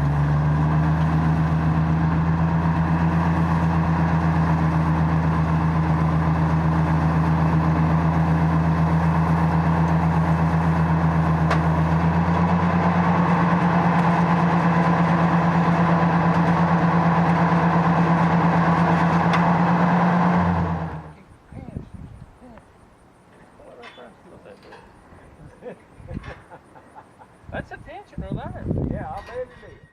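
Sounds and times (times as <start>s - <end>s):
tractor engine running: 0.0s - 21.4s.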